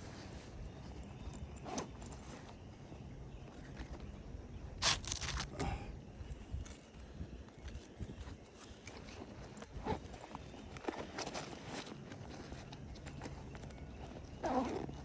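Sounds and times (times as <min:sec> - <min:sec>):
wind rumble on microphone: 0:03.3 - 0:15.0.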